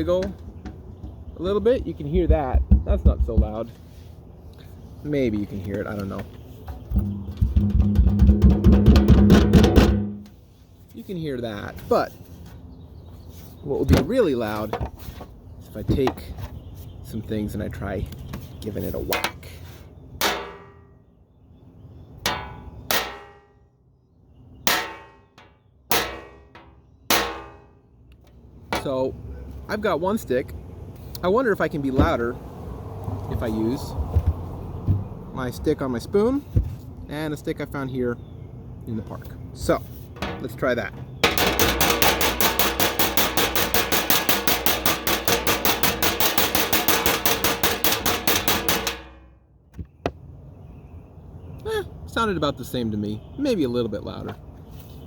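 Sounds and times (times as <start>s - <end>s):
stick clanging on metal pan: 20.2s - 20.8s, 22.3s - 23.5s, 24.7s - 27.7s, 40.2s - 49.3s.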